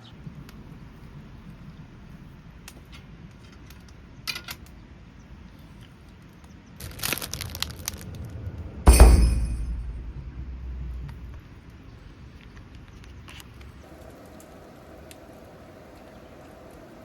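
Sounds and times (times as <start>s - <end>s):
clicks and crinkling of handled objects: 0.1s - 8.4s, 11.0s - 14.5s.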